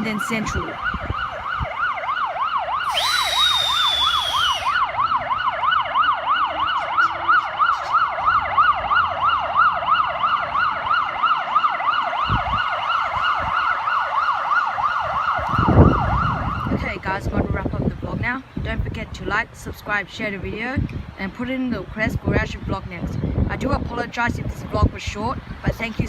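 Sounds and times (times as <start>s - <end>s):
siren yelping: 0.0s - 16.8s
hiss with falling whistle: 2.8s - 4.9s.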